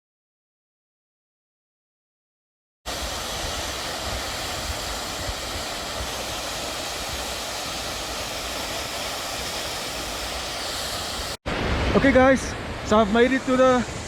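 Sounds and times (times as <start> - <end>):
waterfall roar: 2.9 - 14.0
wind rumbling on microphone: 2.9 - 14.0.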